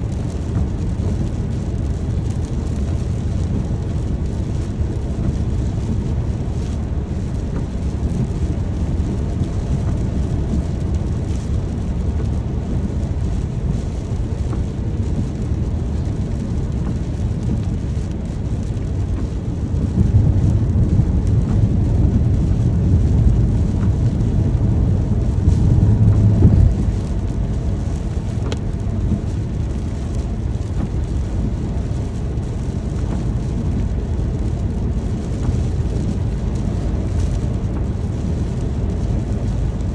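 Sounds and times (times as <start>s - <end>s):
rain rushing noise: 0.0s - 39.9s.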